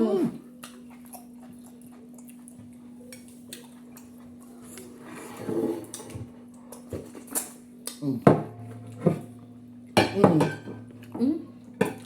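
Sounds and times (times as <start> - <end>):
muffled mealtime sound: 0.0 - 12.0
steady low hum: 5.8 - 12.0.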